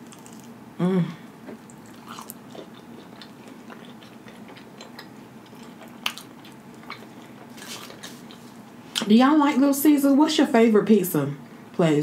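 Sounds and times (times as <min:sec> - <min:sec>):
person chewing: 0:00.0 - 0:00.6, 0:01.5 - 0:09.0.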